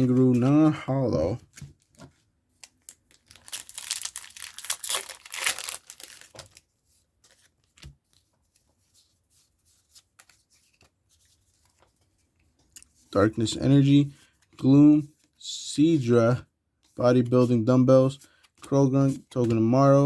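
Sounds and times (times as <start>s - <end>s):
foil wrapper tearing and crinkling: 2.8s - 6.6s.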